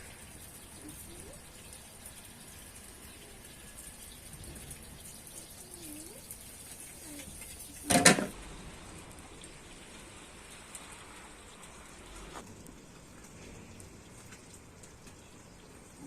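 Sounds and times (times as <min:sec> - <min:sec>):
rain hissing: 0:00.0 - 0:16.0
object clattering down: 0:07.9 - 0:08.3.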